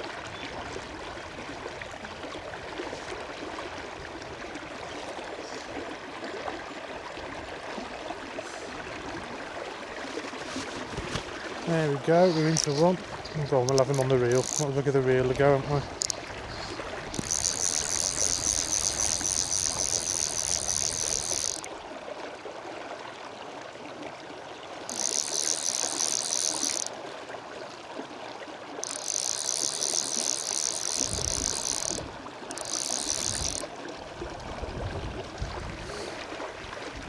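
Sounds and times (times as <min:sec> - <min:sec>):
river water flowing: 0:00.0 - 0:37.0
fly reel clicking: 0:12.1 - 0:12.9, 0:13.6 - 0:14.8, 0:15.9 - 0:16.2, 0:17.1 - 0:21.7, 0:24.8 - 0:27.0, 0:28.8 - 0:33.7.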